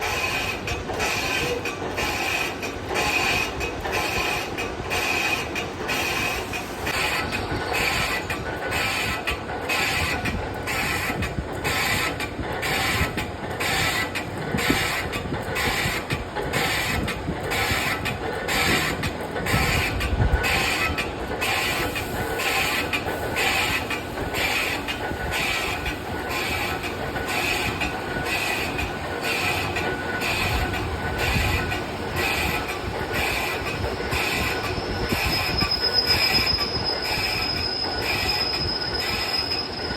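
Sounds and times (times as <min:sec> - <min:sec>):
lathe mechanical rumble: 0:00.0 - 0:39.9.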